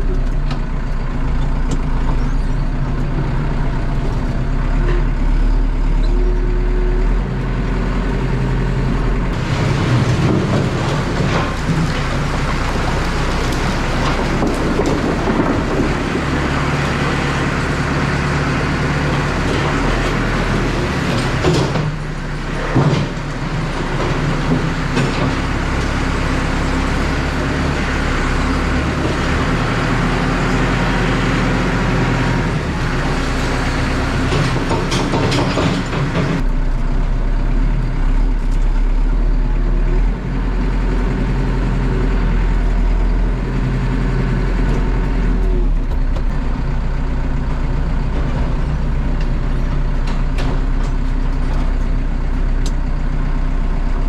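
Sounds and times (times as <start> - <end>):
tractor engine running: 0.0 - 54.0
firewood logs clattering: 9.4 - 27.6.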